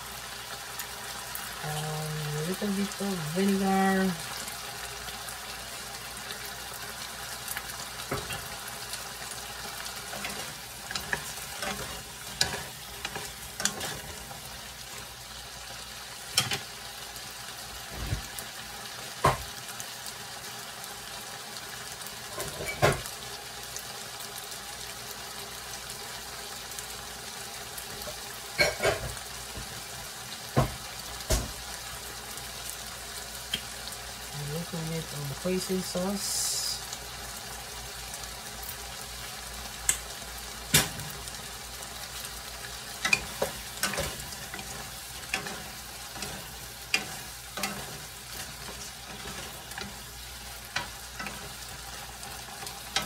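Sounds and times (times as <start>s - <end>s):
shrimp sizzling in a pan: 0.0s - 53.0s.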